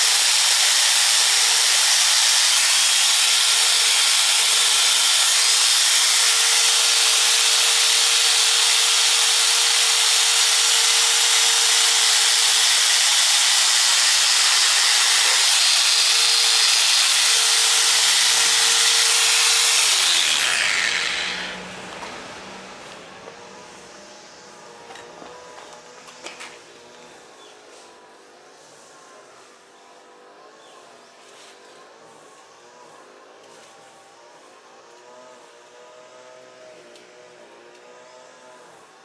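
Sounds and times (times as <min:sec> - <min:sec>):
power tool grinding: 0:00.0 - 0:29.4.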